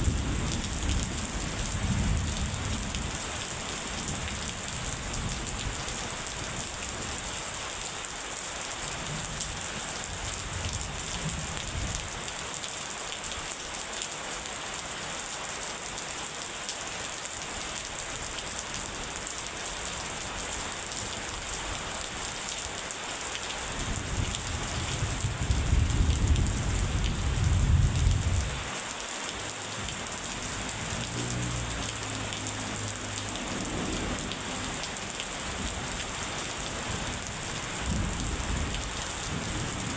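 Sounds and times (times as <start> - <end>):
steady rain falling: 0.0 - 39.9
thunder rumbling: 24.0 - 28.7.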